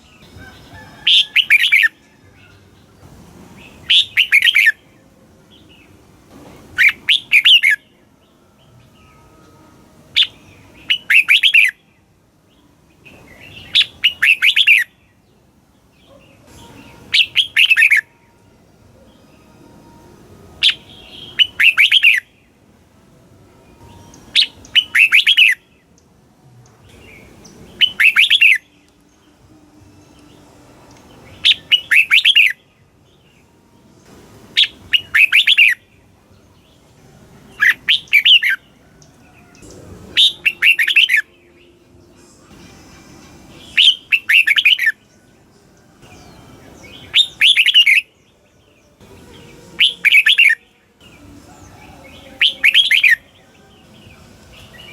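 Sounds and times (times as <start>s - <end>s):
bird singing warbled phrase: 3.6s - 4.8s, 6.8s - 8.4s, 10.2s - 11.8s, 12.5s - 15.2s, 16.0s - 18.1s, 20.6s - 22.6s, 24.0s - 25.8s, 26.9s - 29.3s, 31.2s - 32.7s, 34.6s - 36.0s, 37.5s - 41.8s, 43.6s - 45.2s, 46.0s - 54.9s.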